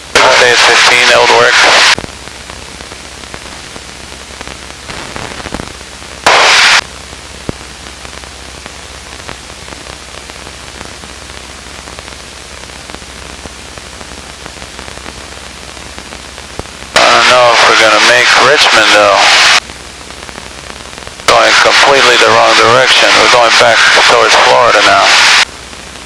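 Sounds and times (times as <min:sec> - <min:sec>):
radio intercom hiss: 0:00.0 - 0:02.0, 0:04.8 - 0:06.8, 0:16.9 - 0:19.6, 0:21.2 - 0:26.0
loud burst of static: 0:00.0 - 0:26.0.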